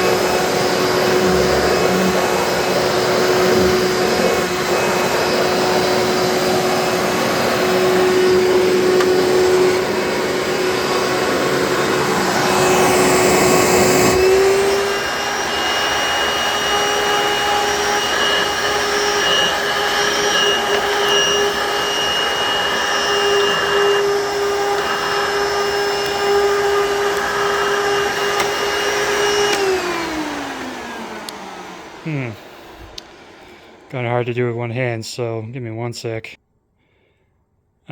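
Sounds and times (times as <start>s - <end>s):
vacuum cleaner running: 0.0s - 34.5s.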